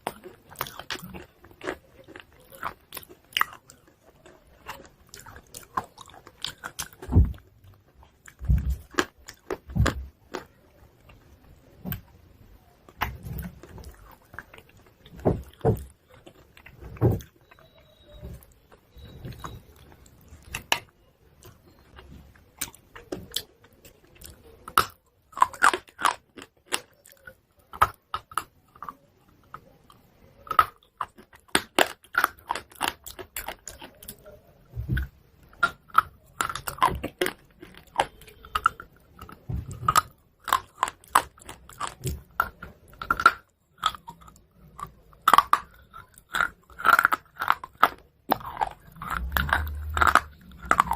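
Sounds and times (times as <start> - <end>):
chewing crunchy chalk: 35.5 - 50.9.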